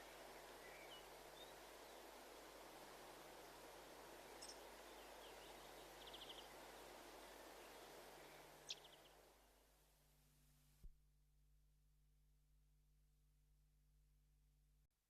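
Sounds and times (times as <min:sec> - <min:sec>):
faint birdsong: 0:00.0 - 0:09.6
outdoor background hiss: 0:00.0 - 0:11.0.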